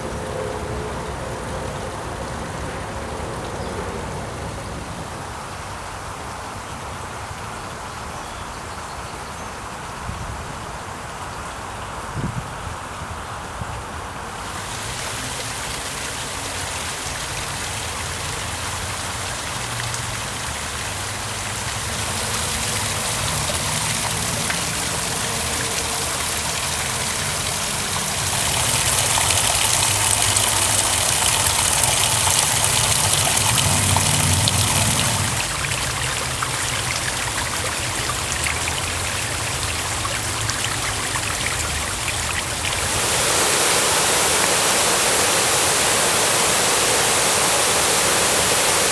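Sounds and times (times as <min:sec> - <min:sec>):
stream water rushing over rocks: 0:14.3 - 0:48.9.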